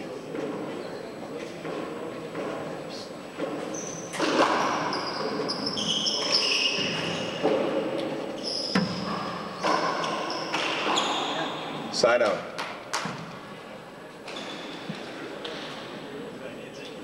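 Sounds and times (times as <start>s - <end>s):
sneakers squeaking on court floor: 3.4s - 11.8s, 14.2s - 16.1s.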